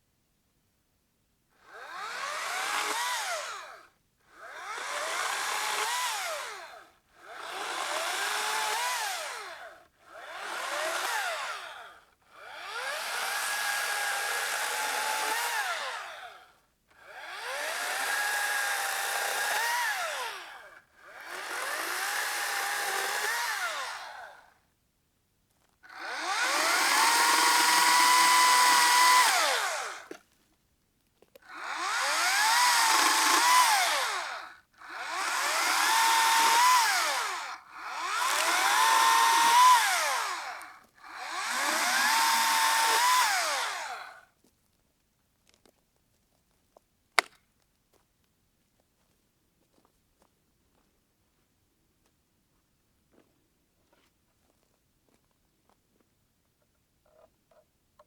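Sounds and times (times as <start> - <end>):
small electric motor whirring: 1.6 - 24.5, 25.9 - 30.2, 31.5 - 44.2.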